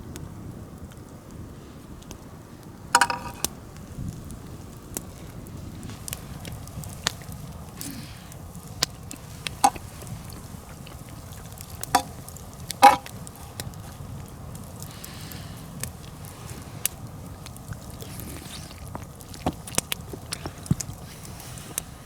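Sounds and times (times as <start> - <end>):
campfire burning with low rush: 0.0 - 22.0
wood popping and cracking: 3.0 - 3.6, 4.9 - 15.2.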